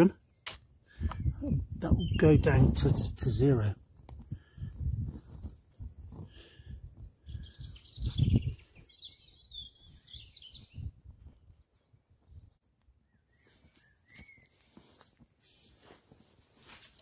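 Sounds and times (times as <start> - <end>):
birds singing: 0.1 - 3.7, 5.6 - 11.0, 11.7 - 14.8.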